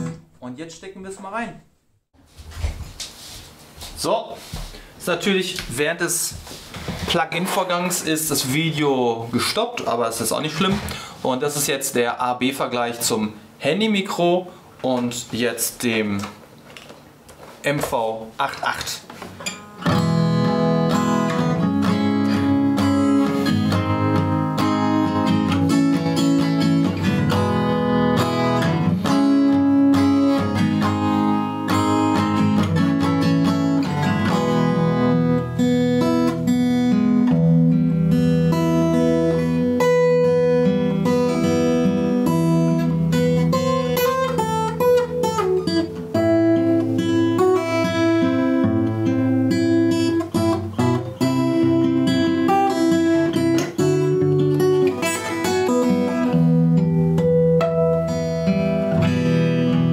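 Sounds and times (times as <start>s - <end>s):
guitar playing: 0.0s - 0.4s, 18.6s - 59.9s.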